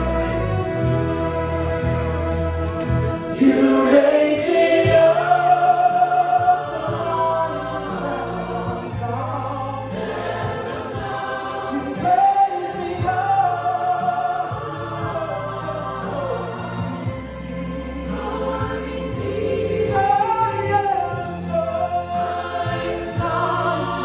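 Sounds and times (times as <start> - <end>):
choir-like singing voices: 0.0 - 24.0
sustained low accompaniment: 0.0 - 24.0.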